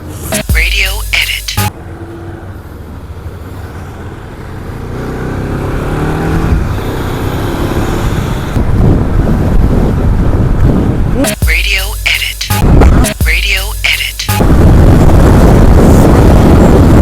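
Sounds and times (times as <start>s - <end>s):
motorcycle engine accelerating: 4.4s - 9.5s
wind rush on microphone: 7.8s - 11.2s, 14.4s - 17.0s.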